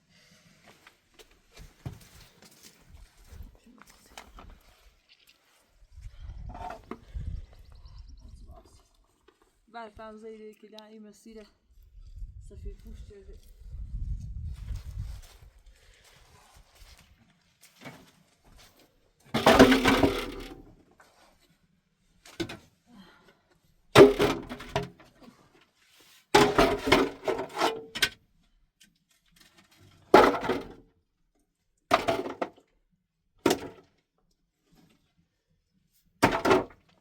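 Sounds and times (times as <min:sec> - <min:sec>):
hard objects knocking and clattering: 0:19.4 - 0:20.6, 0:24.0 - 0:25.0, 0:26.4 - 0:27.9, 0:36.2 - 0:36.8.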